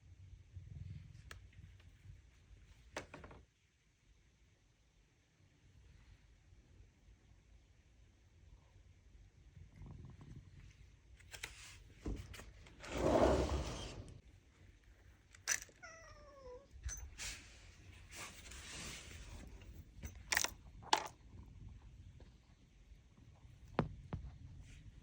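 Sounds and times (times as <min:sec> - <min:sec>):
cat meowing: 0:15.6 - 0:16.8.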